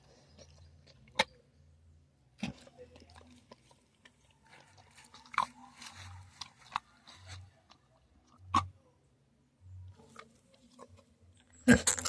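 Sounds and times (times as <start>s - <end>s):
chewing crunches: 0.0s - 1.4s, 2.4s - 8.8s.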